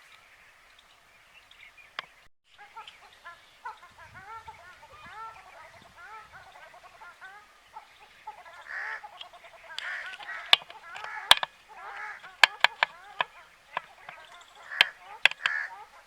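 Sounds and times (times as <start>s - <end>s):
flock of birds calling: 0.0s - 16.0s
sharp clicks: 8.5s - 15.8s.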